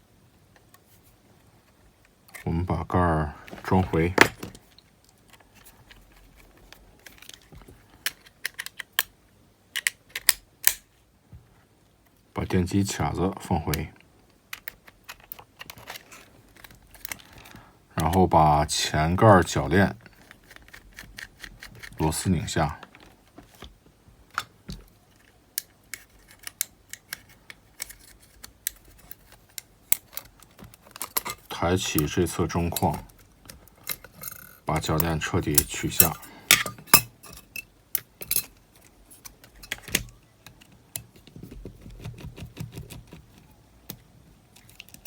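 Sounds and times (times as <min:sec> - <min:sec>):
small screwdriver clicks on metal parts: 0:09.8 - 0:10.8.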